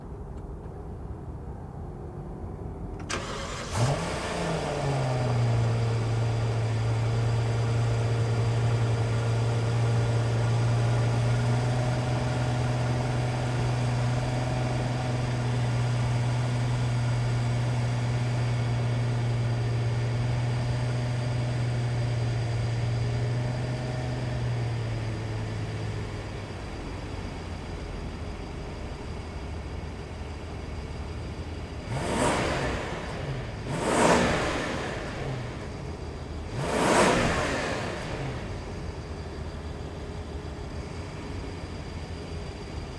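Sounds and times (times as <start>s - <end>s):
car engine idling: 2.8s - 42.9s
car engine starter cranking: 3.0s - 5.4s.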